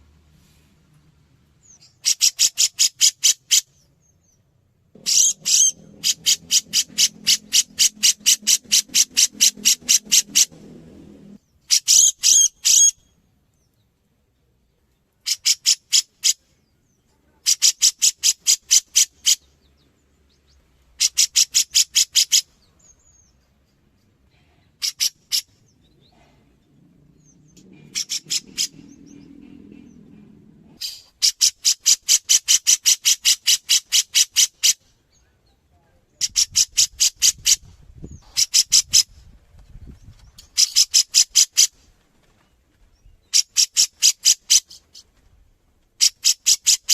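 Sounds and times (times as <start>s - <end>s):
bird harsh chattering calls: 1.6s - 4.4s, 5.0s - 13.2s, 15.2s - 19.8s, 21.0s - 23.4s, 24.7s - 34.9s, 36.2s - 39.2s, 40.4s - 41.8s, 43.3s - 45.1s, 46.0s - 46.9s.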